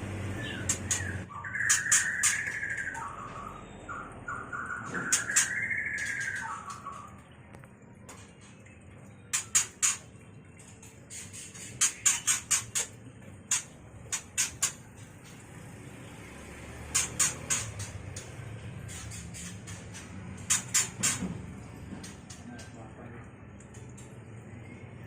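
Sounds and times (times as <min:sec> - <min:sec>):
bird chipping calls: 0:00.2 - 0:07.2, 0:11.1 - 0:14.9, 0:16.8 - 0:21.2.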